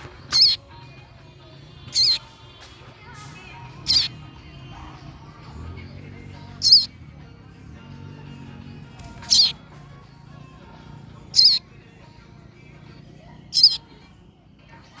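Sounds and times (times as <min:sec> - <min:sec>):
faint music: 0:00.0 - 0:15.0
young bird high-pitched calls: 0:00.1 - 0:00.7, 0:01.9 - 0:02.3, 0:03.7 - 0:04.2, 0:06.6 - 0:07.0, 0:09.2 - 0:09.6, 0:11.3 - 0:11.7, 0:13.4 - 0:14.0
wings fluttering: 0:08.8 - 0:09.6.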